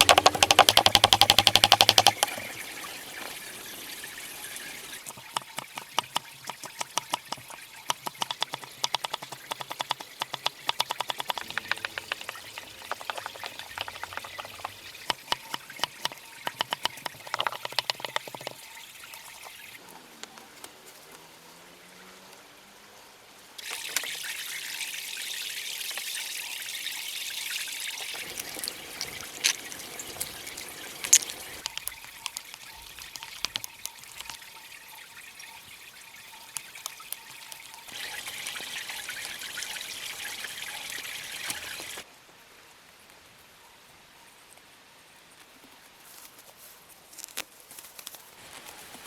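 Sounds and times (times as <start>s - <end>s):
clicks: 0.0s - 2.6s
water splashes: 0.0s - 19.8s, 23.6s - 42.1s
water trickling and pouring: 0.0s - 19.9s, 23.6s - 42.1s.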